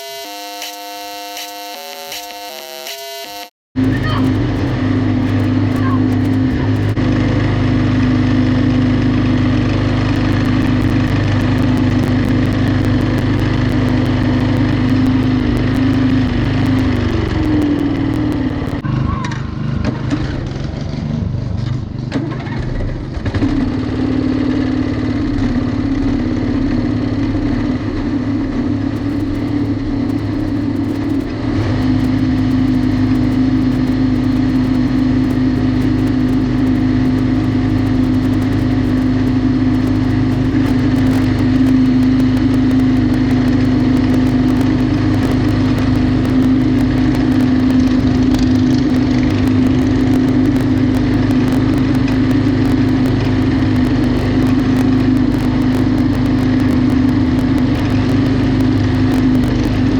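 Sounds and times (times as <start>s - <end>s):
lawnmower engine running: 3.8s - 18.7s, 28.8s - 59.9s.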